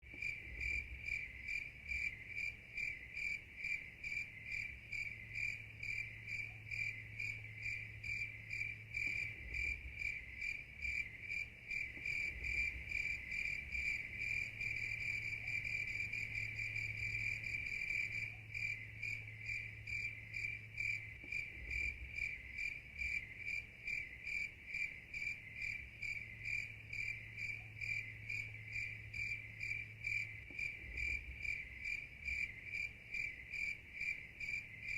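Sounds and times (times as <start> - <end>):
insects chirping at night: 0.1 - 34.9.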